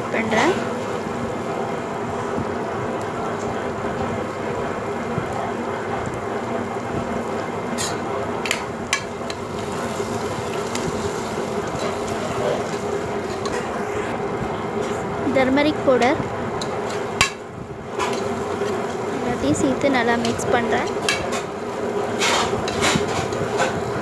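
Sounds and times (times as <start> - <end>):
masala sizzling in oil: 0.0 - 13.7, 14.6 - 24.0
metal spatula stirring: 18.0 - 18.8.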